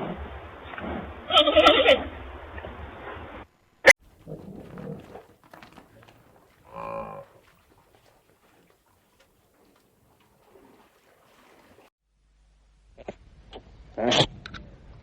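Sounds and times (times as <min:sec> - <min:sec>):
cow mooing: 0:04.2 - 0:07.5.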